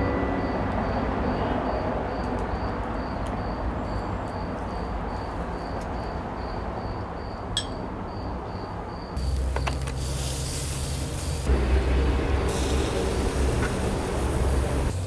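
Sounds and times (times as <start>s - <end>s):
insect chirping: 0.4s - 15.0s
steady hiss: 9.2s - 15.0s.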